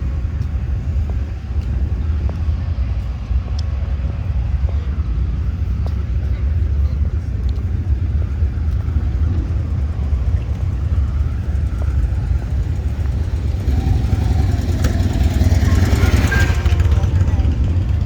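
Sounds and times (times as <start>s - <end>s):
motorcycle engine running: 7.8s - 18.0s.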